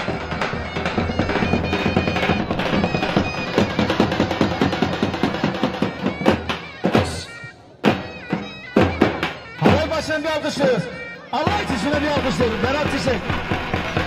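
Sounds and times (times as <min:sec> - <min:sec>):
fast drum beat: 0:00.0 - 0:07.2, 0:11.4 - 0:14.0
reedy wind instrument melody: 0:00.0 - 0:14.0.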